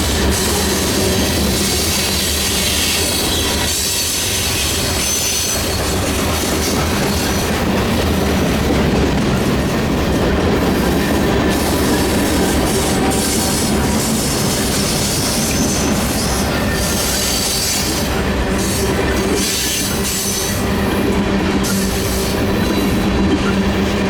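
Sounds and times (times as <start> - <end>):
train wheels rumbling on rails: 0.0 - 24.0
high wheel squeal: 0.4 - 6.1, 11.7 - 20.7.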